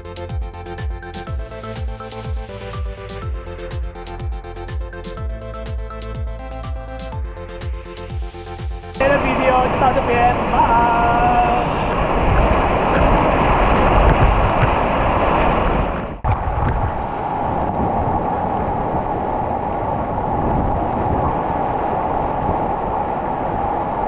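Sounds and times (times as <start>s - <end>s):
waterfall roaring: 9.0s - 16.3s.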